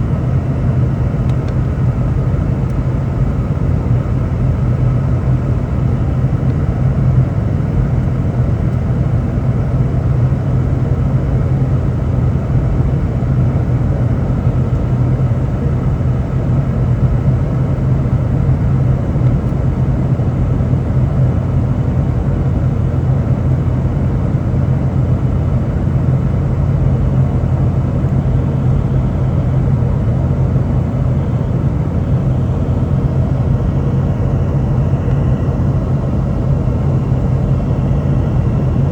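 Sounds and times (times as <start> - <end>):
airplane cabin rumble: 0.0 - 38.9
low hum: 0.0 - 38.9.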